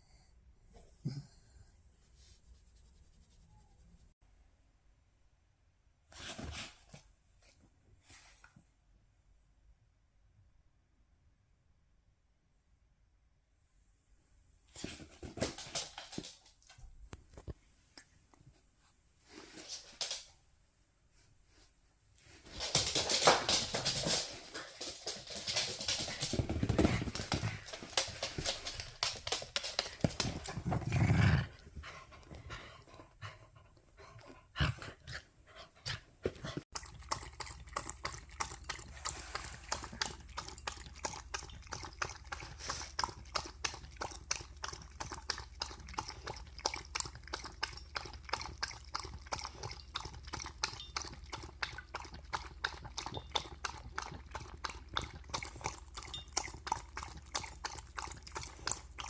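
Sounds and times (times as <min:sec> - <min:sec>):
dog lapping water: 0:36.7 - 0:59.0.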